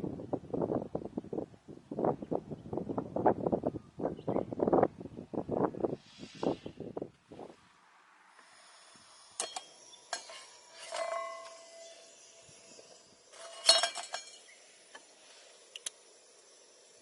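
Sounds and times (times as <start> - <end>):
metal gear clinking: 9.4 - 14.6.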